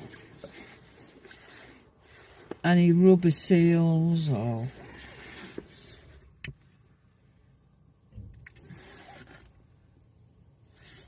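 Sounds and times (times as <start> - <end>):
faint rustle: 0.0 - 3.0.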